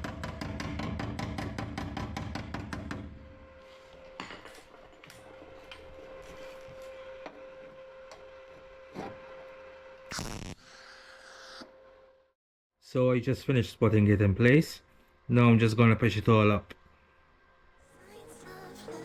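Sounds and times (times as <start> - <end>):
knocks: 0.0 - 3.1.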